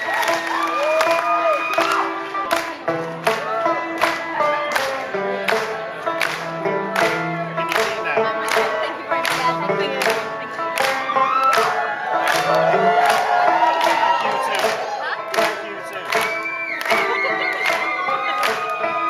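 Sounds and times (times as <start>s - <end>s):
crowd whooping: 0.0s - 2.4s, 11.0s - 15.4s, 16.1s - 19.0s
live band playing instrumental: 0.0s - 19.0s.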